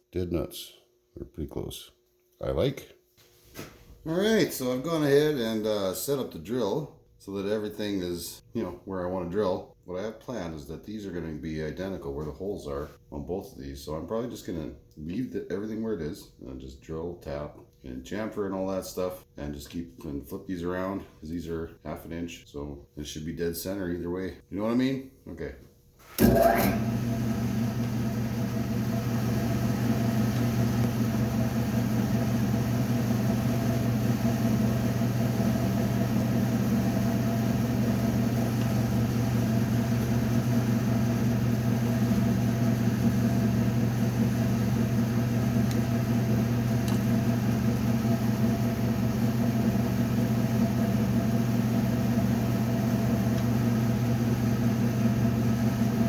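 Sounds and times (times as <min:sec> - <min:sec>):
drill motor humming: 0:26.2 - 0:56.0.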